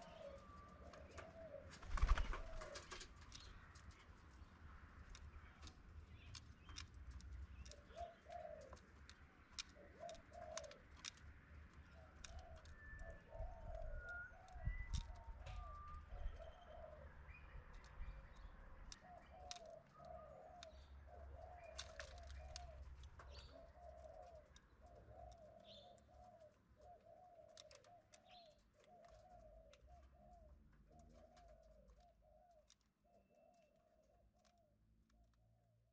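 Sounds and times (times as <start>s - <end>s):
pigeon cooing: 0.0s - 3.1s, 7.7s - 8.8s, 9.8s - 10.9s, 12.0s - 17.2s, 19.0s - 33.8s
faint clicks: 2.9s - 13.0s.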